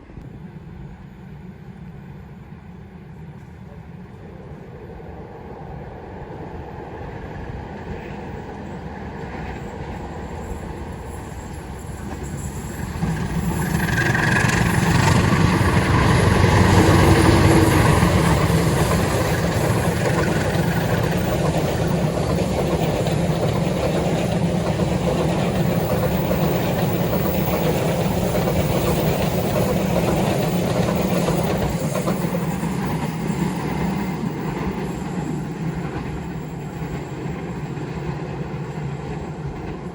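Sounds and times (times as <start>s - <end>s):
diesel locomotive engine: 0.0s - 39.9s
train carriages rumbling past: 0.0s - 39.9s.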